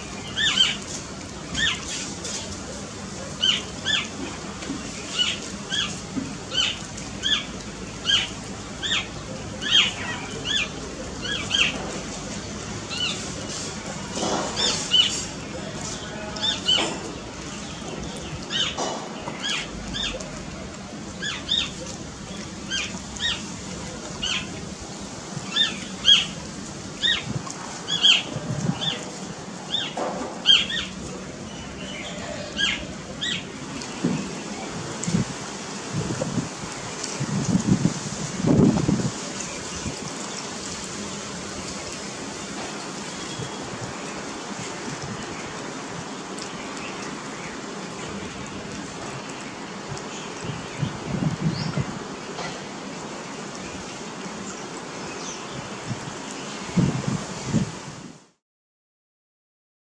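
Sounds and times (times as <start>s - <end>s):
steady outdoor hiss: 0.0s - 58.4s
birds chirping: 3.4s - 34.7s, 42.3s - 52.6s.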